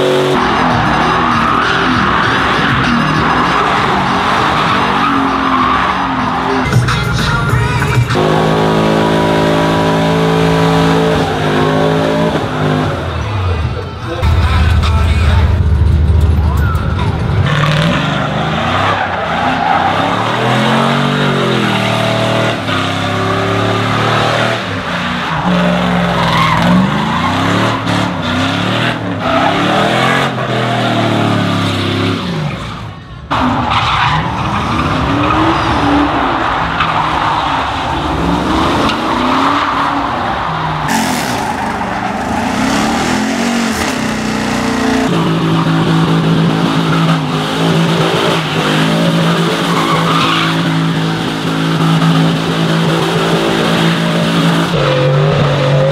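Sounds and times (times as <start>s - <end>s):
tires squealing on pavement: 0.0s - 14.2s, 16.2s - 55.9s
truck engine revving: 0.0s - 55.9s.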